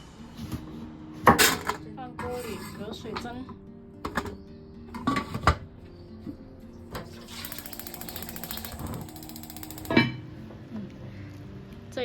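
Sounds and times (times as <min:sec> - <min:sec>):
cookware clattering: 0:01.3 - 0:05.6
fast mechanical clicking: 0:07.0 - 0:10.0.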